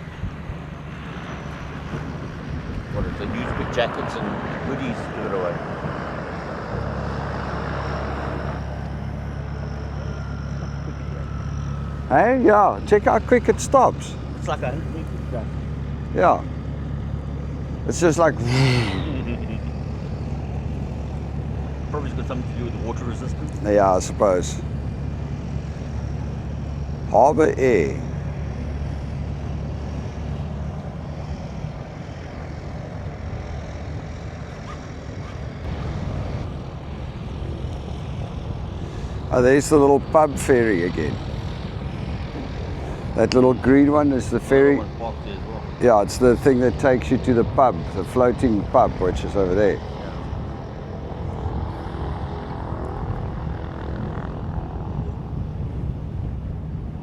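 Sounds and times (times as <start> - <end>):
wind noise: 0.0 - 9.2, 29.5 - 57.0
low engine drone: 0.0 - 57.0.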